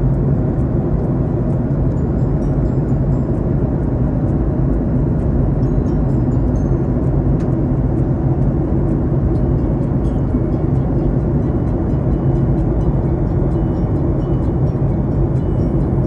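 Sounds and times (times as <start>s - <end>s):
jet engine cabin rumble: 0.0s - 16.0s.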